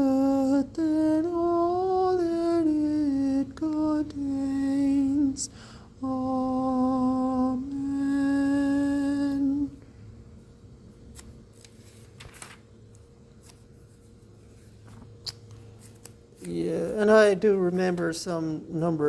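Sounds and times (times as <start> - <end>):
man singing unaccompanied: 0.0 - 9.7
faint clicks and rustles: 11.1 - 17.0.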